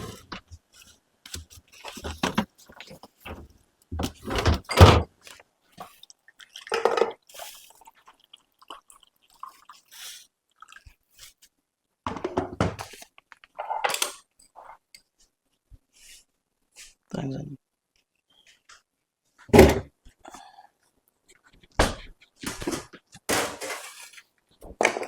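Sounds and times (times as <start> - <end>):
utensils and dishes clattering: 4.1 - 5.1, 22.6 - 24.2.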